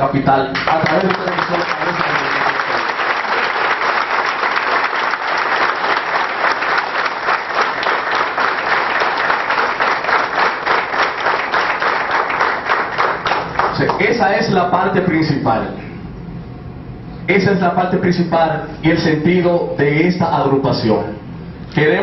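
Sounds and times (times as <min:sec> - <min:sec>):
crowd applauding: 0:00.6 - 0:14.0.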